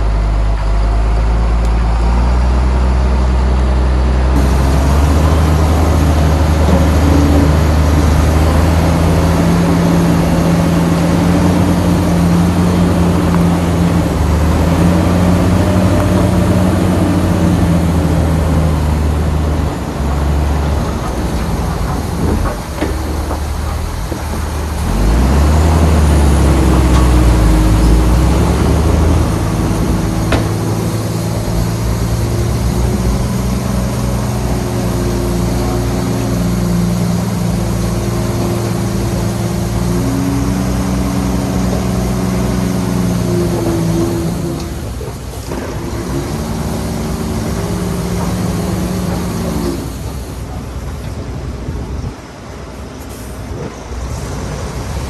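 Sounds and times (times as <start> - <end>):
bulldozer diesel engine: 0.0 - 55.0
short knocks: 20.8 - 35.5.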